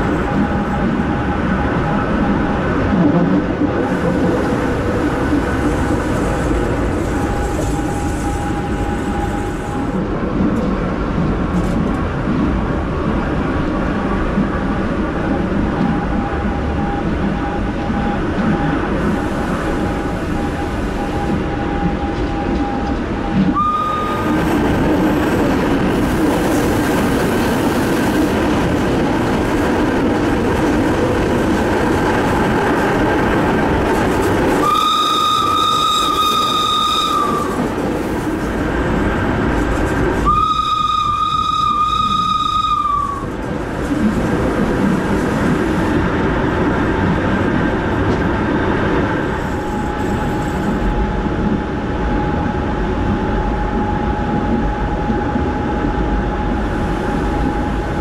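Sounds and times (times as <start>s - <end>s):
train rumble and rattle: 0.0s - 58.0s
train horn: 19.0s - 24.4s, 34.5s - 37.8s, 40.2s - 43.4s.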